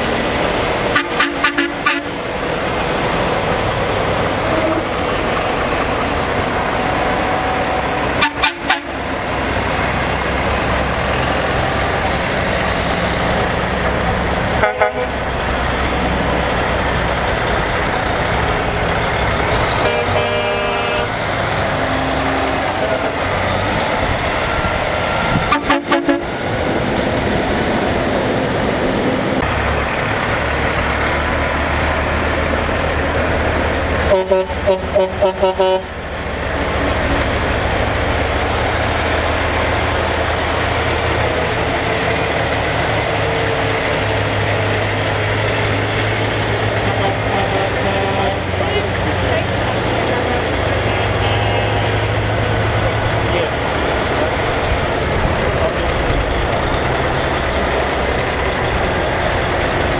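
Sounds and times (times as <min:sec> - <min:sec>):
heavy trucks driving past: 0:00.0 - 0:59.9
truck air horn: 0:00.9 - 0:02.2, 0:06.8 - 0:09.2, 0:14.5 - 0:15.2, 0:19.7 - 0:21.2, 0:25.3 - 0:26.4, 0:34.0 - 0:36.0, 0:46.7 - 0:48.6, 0:50.2 - 0:52.2.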